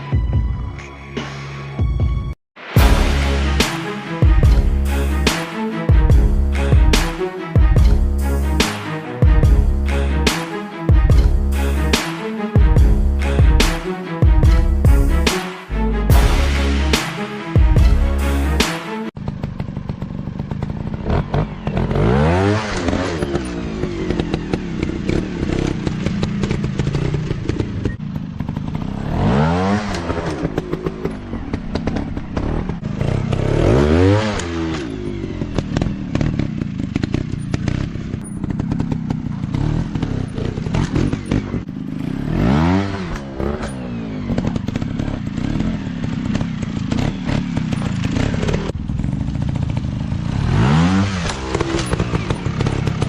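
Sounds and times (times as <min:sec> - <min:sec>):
dirt bike engines revving: 0:19.3 - 0:53.0.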